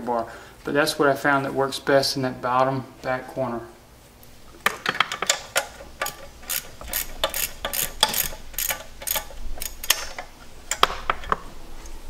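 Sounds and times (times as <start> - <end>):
ratchet clicking: 5.2 - 10.9.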